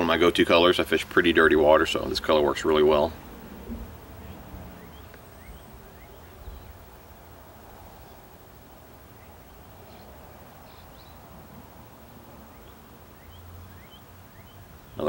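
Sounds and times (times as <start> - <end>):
faint bird chirps: 4.1 - 15.0.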